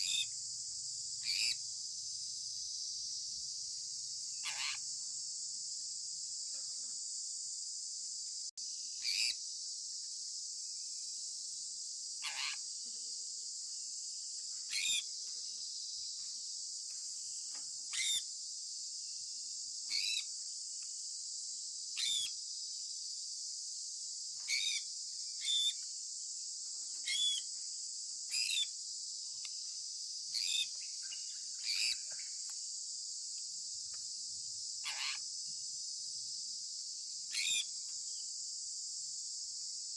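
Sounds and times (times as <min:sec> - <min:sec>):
high-pitched insect hiss: 0:00.0 - 0:39.9
parrot chirping: 0:04.4 - 0:04.8.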